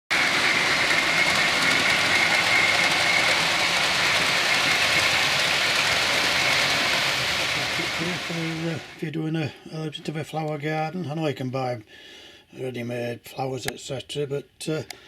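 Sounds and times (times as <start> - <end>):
model train running with whine: 0.1 - 9.2.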